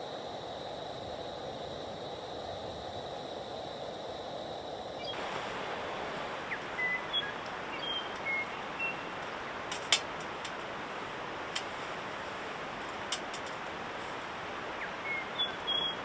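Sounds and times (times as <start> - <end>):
sharp clicks: 9.2 - 10.7.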